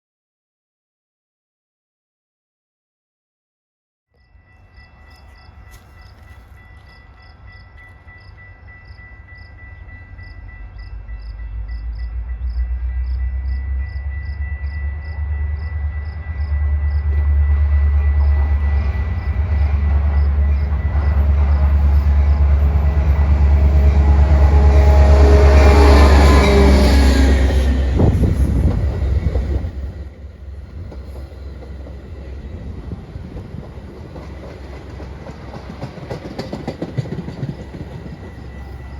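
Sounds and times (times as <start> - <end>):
crossing bell dinging: 4.2 - 28.2, 37.1 - 38.9
train rumble: 4.3 - 38.9.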